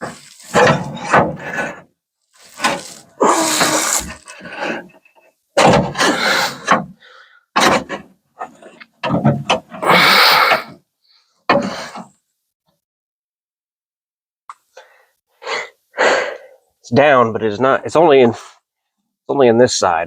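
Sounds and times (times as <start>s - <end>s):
knocking and rattling in car door: 5.6s - 7.0s, 9.0s - 9.8s.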